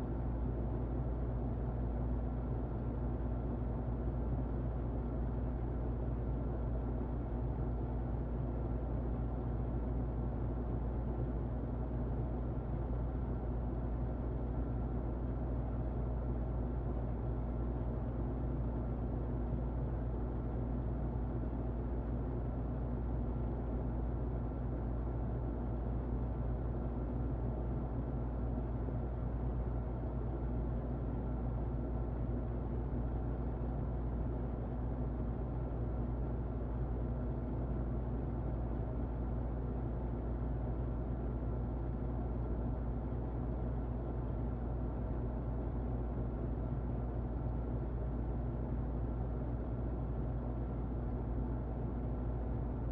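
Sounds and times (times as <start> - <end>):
faint constant hum: 0.0 - 52.9.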